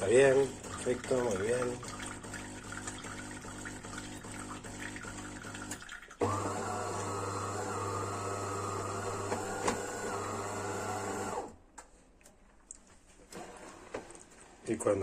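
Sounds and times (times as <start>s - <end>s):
coffee machine pump humming: 0.0s - 11.6s.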